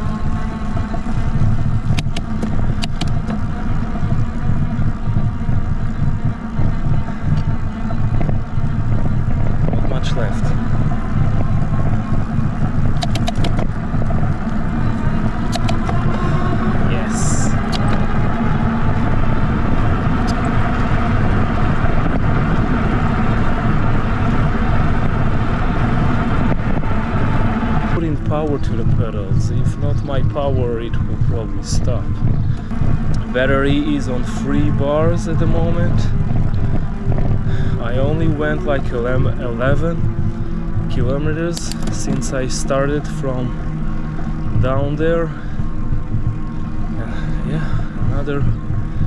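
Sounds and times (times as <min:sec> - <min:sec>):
electric bike motor humming: 0:00.0 - 0:49.0
wind rumble on microphone: 0:00.0 - 0:49.0
sharp clicks: 0:01.8 - 0:03.4, 0:13.0 - 0:13.7, 0:15.4 - 0:16.2, 0:41.5 - 0:42.2.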